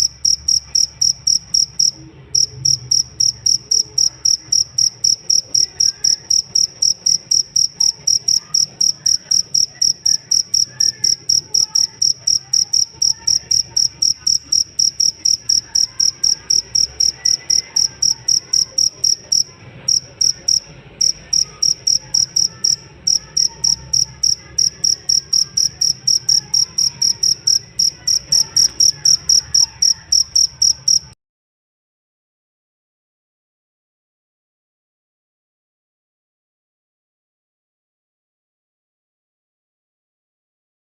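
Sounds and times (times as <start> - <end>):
cricket chirping: 0.0 - 31.1.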